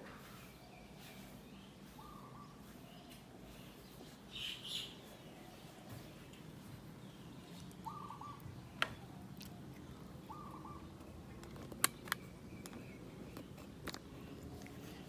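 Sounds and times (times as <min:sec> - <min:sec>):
cat chewing crunches: 0:09.0 - 0:15.0.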